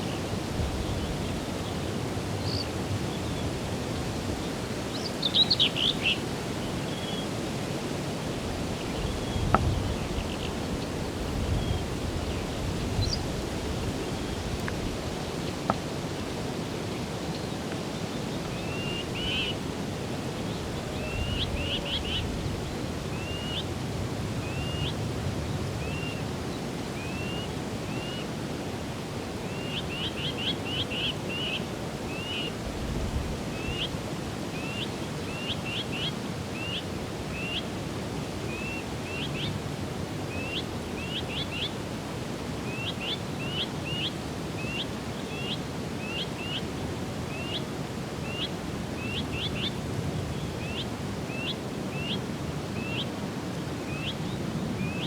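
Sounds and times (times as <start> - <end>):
songbird chirping: 4.9 - 7.3, 8.7 - 13.4, 47.3 - 53.1, 53.9 - 55.0.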